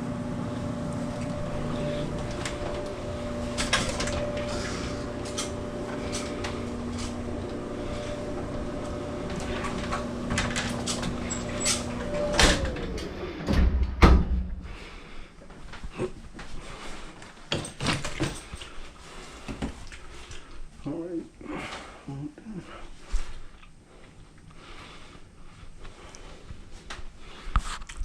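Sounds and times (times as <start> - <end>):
motor winding down: 0.0 - 13.5
clothes dryer motor humming: 0.0 - 17.0
loud thump: 13.5 - 14.7.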